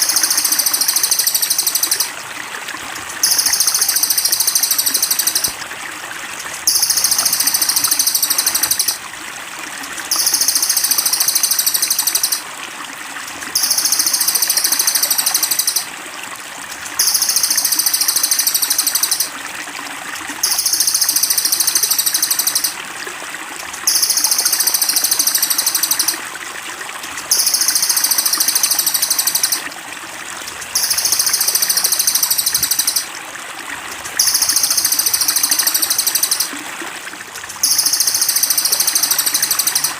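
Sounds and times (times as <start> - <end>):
songbird high rapid trill: 0.0 - 2.1, 3.2 - 5.6, 6.6 - 9.0, 10.1 - 12.4, 13.6 - 15.9, 17.0 - 19.3, 20.4 - 22.8, 23.9 - 26.2, 27.3 - 29.6, 30.7 - 33.1, 34.2 - 36.5, 37.6 - 39.9
trickling water: 0.0 - 39.9.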